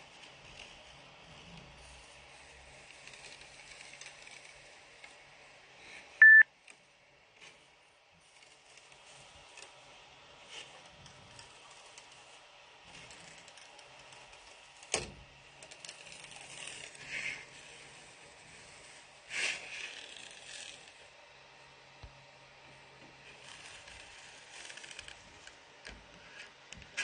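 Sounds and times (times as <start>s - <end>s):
spatula scraping plastic print: 0.1s - 6.0s, 7.4s - 21.2s, 23.0s - 27.0s.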